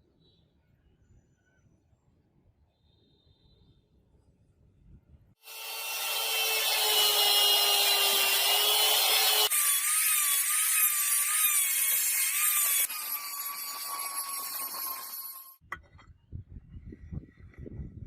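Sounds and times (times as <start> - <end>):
power tool grinding metal: 5.4 - 15.6.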